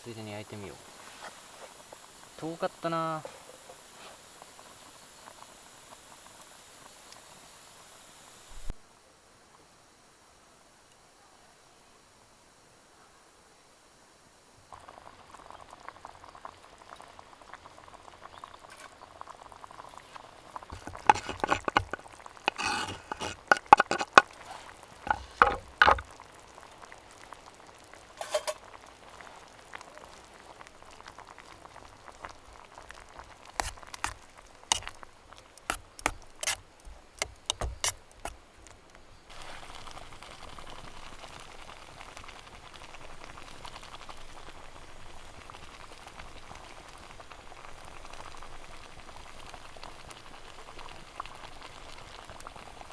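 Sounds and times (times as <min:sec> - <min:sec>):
bubbling hiss: 0:00.0 - 0:08.8, 0:14.6 - 0:52.9
stew bubbling in a pot: 0:00.0 - 0:08.8, 0:14.6 - 0:52.9
utensil clinking and scraping pot: 0:20.7 - 0:26.1, 0:28.2 - 0:28.6, 0:33.5 - 0:38.8.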